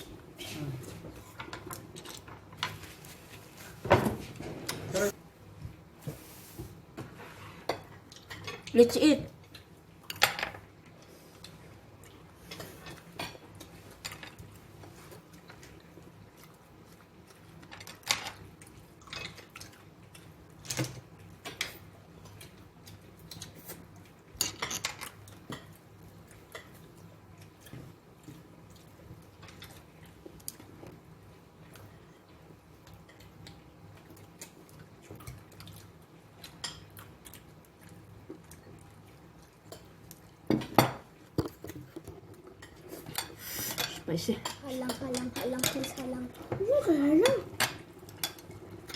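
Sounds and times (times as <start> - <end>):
utensils clinking on dishes: 24.4 - 25.8.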